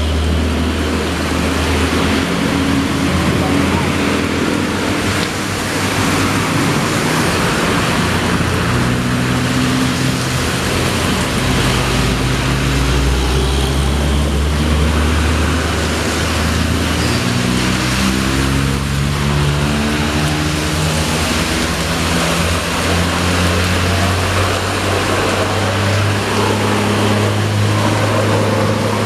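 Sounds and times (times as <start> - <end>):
diesel truck engine labouring: 0.0 - 29.0
rain hiss and wet road noise: 0.0 - 29.0.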